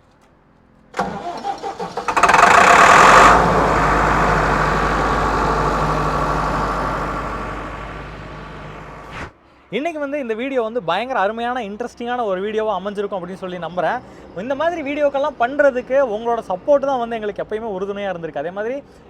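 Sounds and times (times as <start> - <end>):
diesel engine starting and idling: 0.9 - 9.2.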